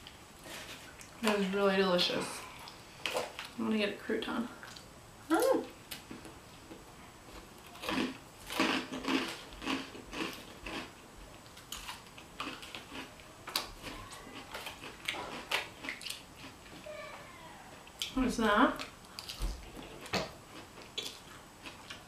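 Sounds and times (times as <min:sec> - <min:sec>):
chewing crunchy salad: 0:07.6 - 0:16.7, 0:18.8 - 0:22.0.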